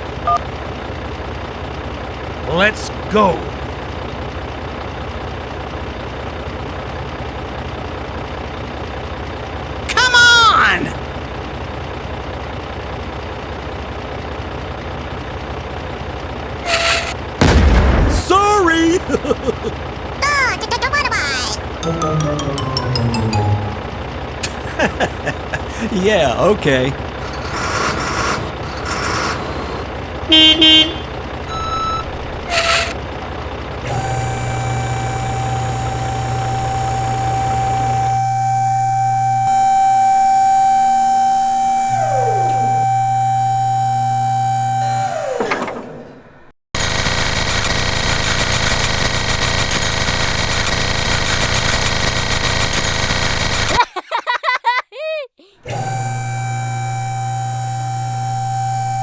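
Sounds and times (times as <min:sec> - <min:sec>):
small engine running: 0:00.0 - 0:17.4, 0:19.1 - 0:53.8, 0:55.6 - 0:59.0
high-pitched held tone: 0:21.6 - 0:24.6, 0:31.5 - 0:33.0, 0:33.9 - 0:45.2
motor-like rumble: 0:23.6 - 0:46.6, 0:55.7 - 0:59.0
vehicle horn toots: 0:27.2 - 0:33.0.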